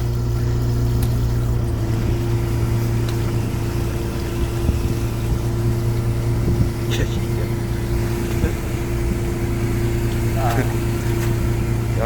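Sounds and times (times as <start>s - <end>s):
boat engine low drone: 0.0s - 12.0s
hydraulic hauler hum: 0.0s - 12.0s.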